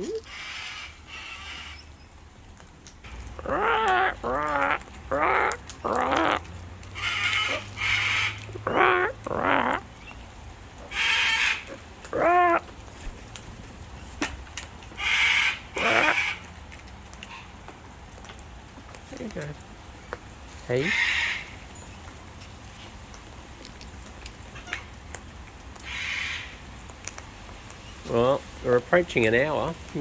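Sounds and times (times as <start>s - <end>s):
cockatoos squawking and screeching: 0.0s - 2.0s, 3.1s - 12.7s, 14.9s - 16.5s, 20.8s - 21.7s, 25.8s - 26.6s.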